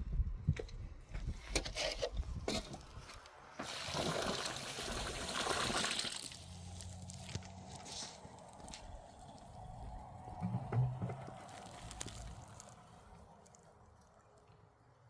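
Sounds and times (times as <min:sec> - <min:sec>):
water trickling and sloshing: 0:03.6 - 0:07.7.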